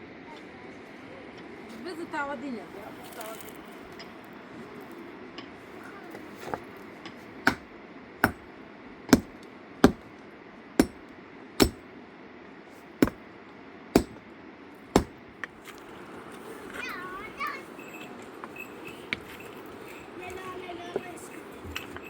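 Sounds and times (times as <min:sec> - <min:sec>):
hand tool striking heavily: 0:07.5 - 0:08.4, 0:09.1 - 0:10.1, 0:10.8 - 0:11.0, 0:11.6 - 0:11.8, 0:13.0 - 0:13.2, 0:14.0 - 0:14.2, 0:14.9 - 0:15.2.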